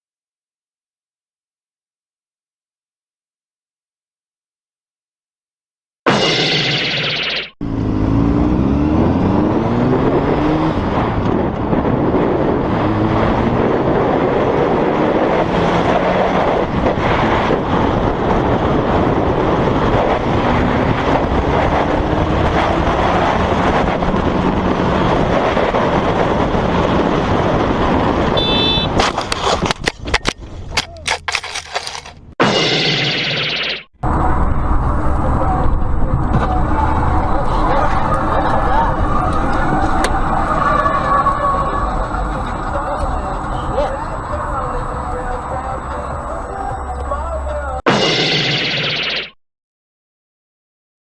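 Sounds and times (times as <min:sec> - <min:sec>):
car engine revving: 0:07.6 - 0:29.4
road and wind noise: 0:07.6 - 0:32.4, 0:33.9 - 0:47.8.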